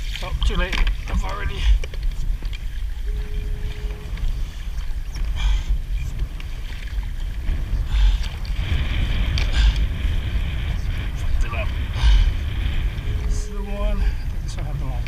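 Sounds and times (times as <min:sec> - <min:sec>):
water lapping around a kayak: 0:00.0 - 0:15.0
wind rumbling on microphone: 0:00.0 - 0:15.0
short steady tone: 0:03.1 - 0:04.3, 0:13.0 - 0:14.2.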